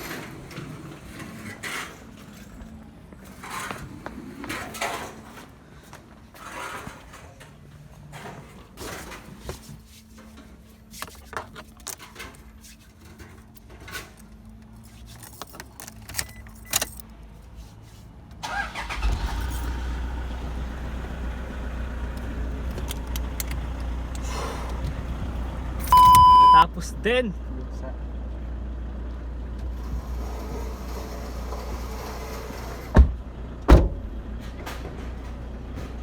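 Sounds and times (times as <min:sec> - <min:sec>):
car engine starting and idling: 0:18.3 - 0:36.0.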